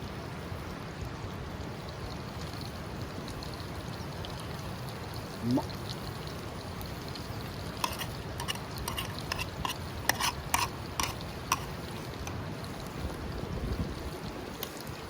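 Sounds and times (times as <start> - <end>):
utensil scraping a dish: 7.7 - 12.4.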